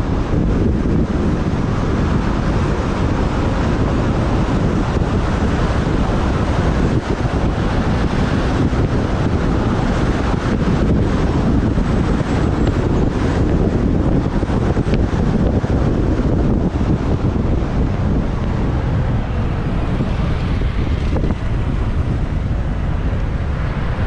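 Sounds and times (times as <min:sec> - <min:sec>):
road and traffic noise: 0:00.0 - 0:24.0
wind buffeting microphone: 0:00.0 - 0:24.0.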